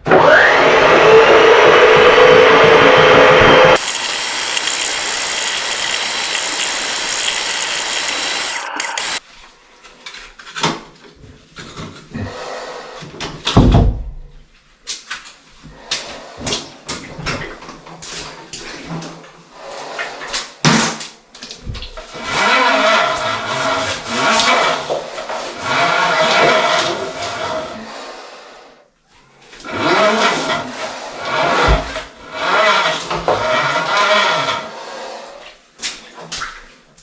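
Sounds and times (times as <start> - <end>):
motor-driven machine running: 3.7 - 9.2.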